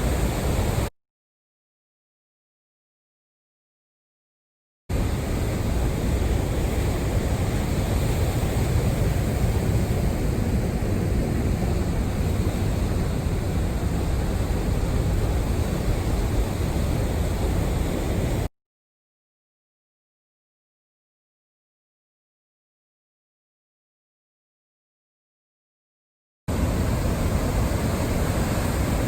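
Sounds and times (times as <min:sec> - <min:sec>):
heavy surf: 0:00.0 - 0:00.9, 0:04.9 - 0:18.5, 0:26.5 - 0:29.0
strong gusty wind: 0:04.9 - 0:18.5, 0:26.5 - 0:29.0
wind rumbling on microphone: 0:04.9 - 0:18.5, 0:26.5 - 0:29.0.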